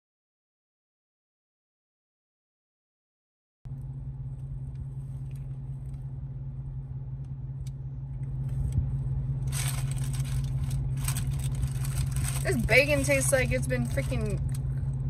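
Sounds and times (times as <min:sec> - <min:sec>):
car engine idling: 0:03.7 - 0:15.0.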